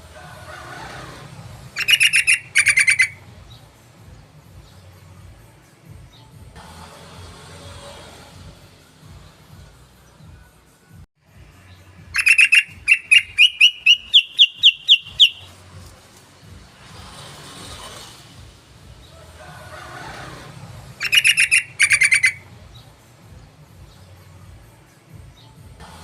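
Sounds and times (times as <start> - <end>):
bird chattering calls: 1.8 - 3.2, 12.2 - 15.6, 21.0 - 22.5.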